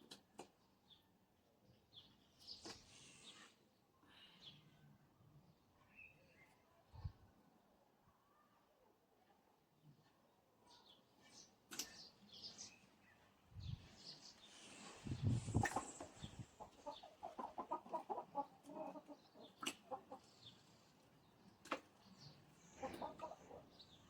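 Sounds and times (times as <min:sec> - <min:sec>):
chickens clucking: 0:14.1 - 0:24.0.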